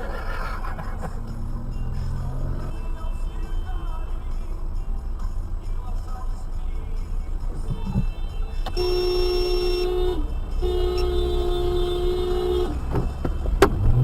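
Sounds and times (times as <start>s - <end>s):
car driving on road: 0.0s - 14.0s
car horn blasts: 7.6s - 13.9s.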